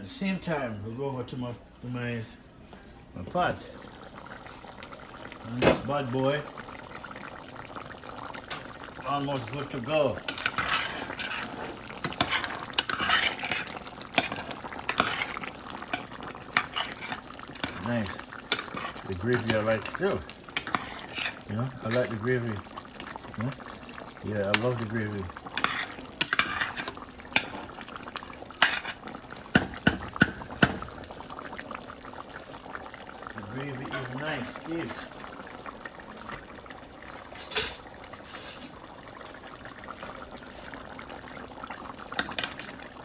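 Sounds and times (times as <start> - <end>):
gravy simmering hiss: 0.0 - 43.0
spoon knocking against cooking pot: 29.5 - 30.9.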